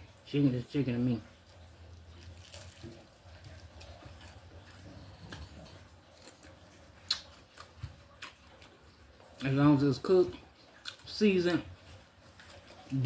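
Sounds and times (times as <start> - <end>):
person chewing: 1.4 - 9.6, 10.3 - 13.0
wet mouth clicks: 7.1 - 7.3.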